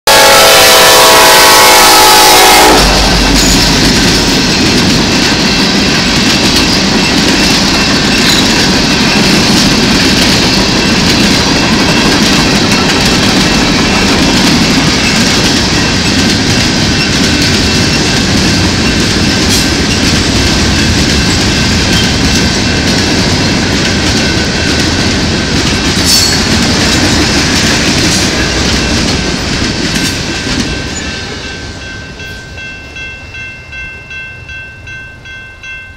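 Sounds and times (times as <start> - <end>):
locomotive horn: 0.0 - 3.6
freight train wheels clacking: 0.2 - 35.9.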